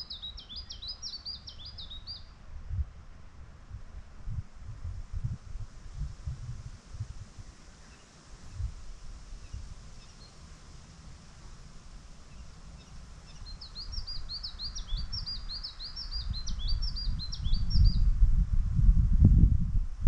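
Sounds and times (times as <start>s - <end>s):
songbird chirping: 0.0s - 2.5s, 7.3s - 18.1s
wind rumble on microphone: 0.0s - 20.0s.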